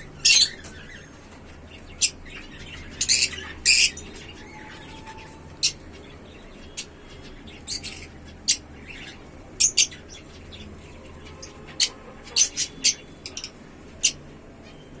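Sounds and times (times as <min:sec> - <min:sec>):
lovebirds chirping: 0:00.0 - 0:15.0.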